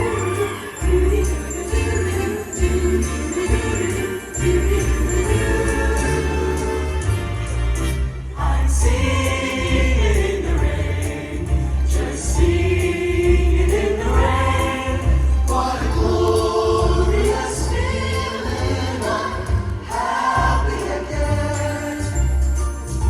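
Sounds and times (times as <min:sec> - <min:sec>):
choir singing in harmony: 0:00.0 - 0:22.8
musical accompaniment with bass: 0:00.0 - 0:23.0.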